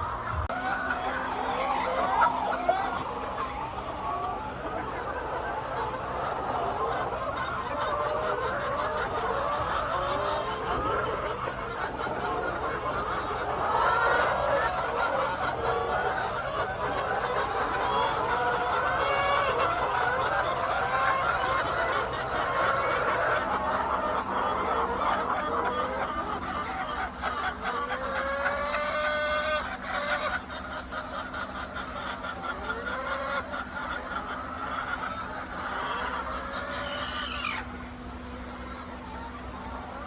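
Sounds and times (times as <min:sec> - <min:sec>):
low hum: 0:00.0 - 0:04.7
hens clucking: 0:00.0 - 0:40.0.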